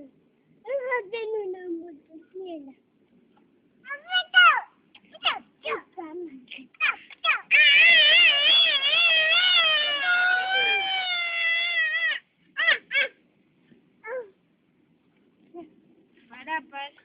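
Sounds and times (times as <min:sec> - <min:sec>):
short high cries: 0:06.8 - 0:13.2.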